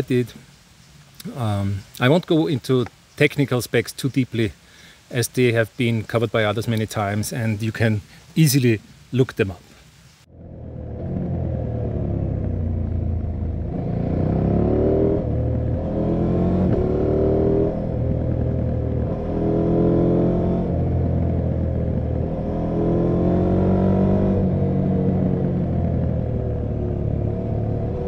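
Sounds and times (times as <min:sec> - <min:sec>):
motorcycle engine accelerating through gears: 0:10.3 - 0:28.0.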